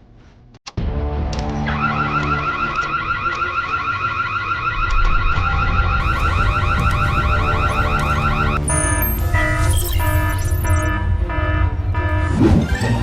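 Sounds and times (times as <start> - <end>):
electronic alarm warble: 1.7 - 13.0
low rumble: 4.9 - 12.0.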